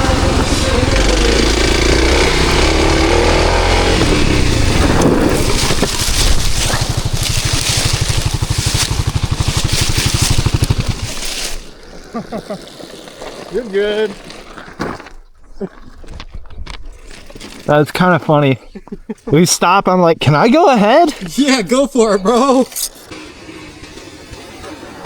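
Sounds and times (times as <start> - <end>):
dirt bike engine revving: 0.0 - 14.6, 20.4 - 25.0.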